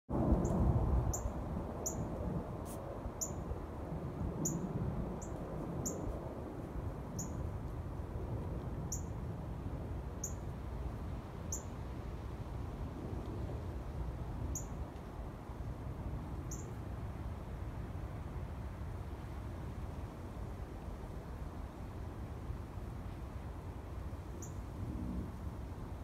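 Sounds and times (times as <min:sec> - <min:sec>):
low outdoor rumble: 0:00.1 - 0:26.0
bird chirping: 0:07.2 - 0:07.4, 0:16.5 - 0:16.7.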